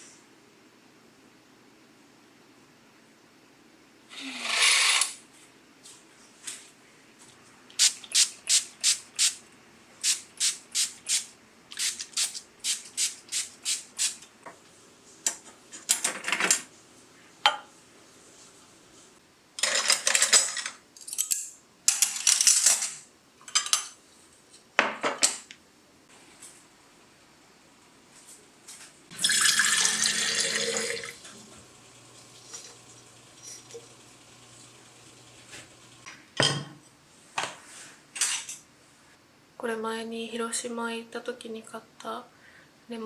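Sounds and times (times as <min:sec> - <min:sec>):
kitchenware scraping and clattering: 0:15.3 - 0:16.7, 0:19.6 - 0:24.0, 0:32.4 - 0:33.9, 0:38.1 - 0:38.6.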